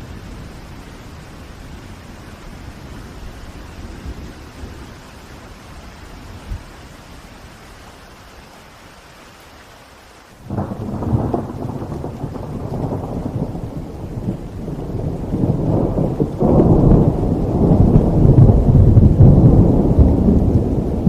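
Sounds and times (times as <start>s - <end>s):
rain hiss: 0.0s - 21.0s
thunder rumbling: 10.4s - 21.0s.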